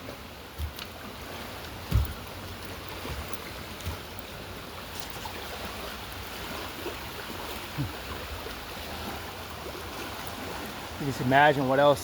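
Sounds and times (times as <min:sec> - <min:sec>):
river rushing: 0:00.0 - 0:12.0
soft low thumps: 0:01.8 - 0:02.3.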